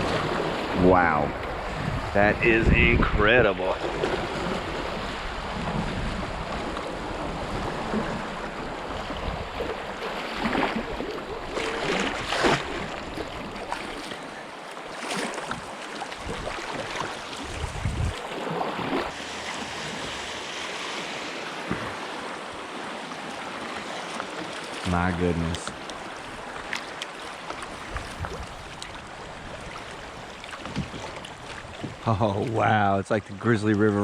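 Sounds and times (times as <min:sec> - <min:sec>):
wind buffeting microphone: 0:00.0 - 0:13.7, 0:15.5 - 0:18.2, 0:27.7 - 0:32.1
fast river current rushing: 0:00.0 - 0:32.6
water splashing: 0:00.0 - 0:32.7.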